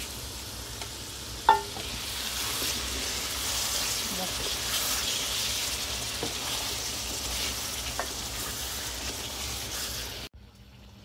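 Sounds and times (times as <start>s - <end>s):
food sizzling in oil: 0.0s - 11.0s
wooden spatula knocking on pan: 1.5s - 1.8s.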